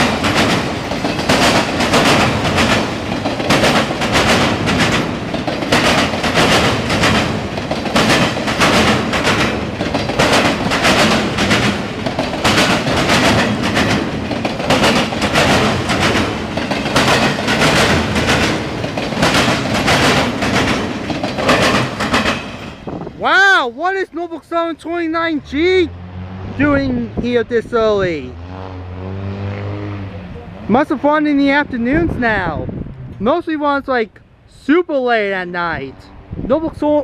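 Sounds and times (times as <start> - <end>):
wheels clacking on rail joints: 0.0 - 24.7
freight train rumbling past: 0.0 - 34.5.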